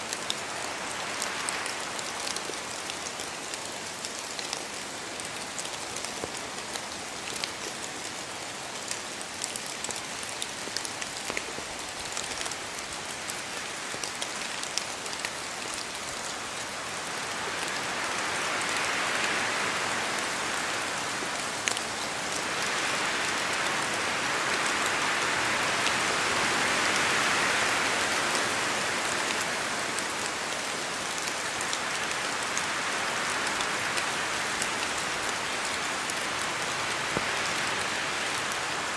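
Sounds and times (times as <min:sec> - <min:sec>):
rain on foliage: 0:00.0 - 0:38.9
wind gust through trees: 0:00.0 - 0:38.9
water drips from leaves: 0:00.1 - 0:18.8.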